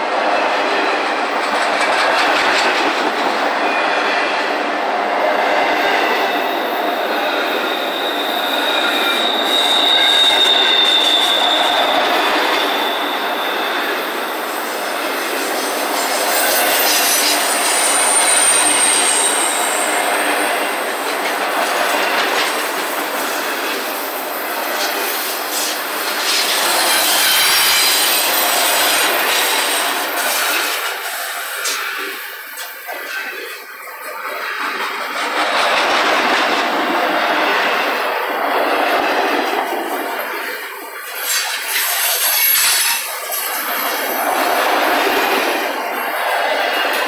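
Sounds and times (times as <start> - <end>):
freight train wheels rushing on rail: 0.0 - 47.0
high wheel squeal: 6.2 - 33.5, 40.2 - 47.0.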